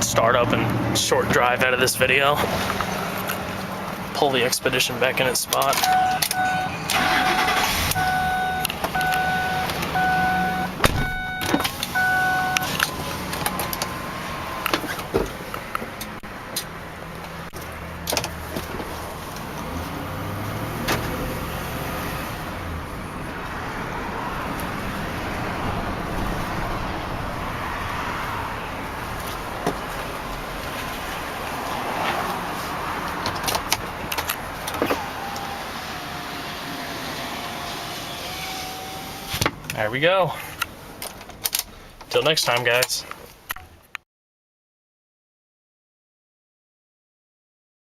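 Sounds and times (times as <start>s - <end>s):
car engine running: 0.5s - 27.7s
car warning chime beeping: 5.8s - 14.8s
car door shutting: 5.8s - 15.9s, 20.8s - 21.2s.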